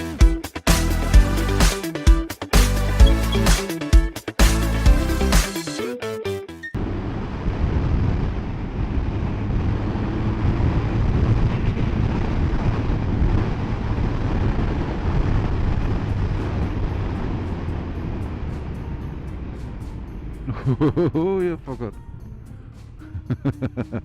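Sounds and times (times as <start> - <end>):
wind rush over microphone: 6.8 - 20.0
motorcycle engine drone: 6.8 - 24.0.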